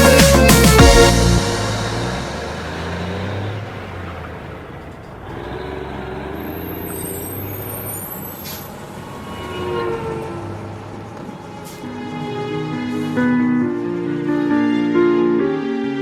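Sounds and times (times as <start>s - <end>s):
truck engine running: 0.0s - 9.2s.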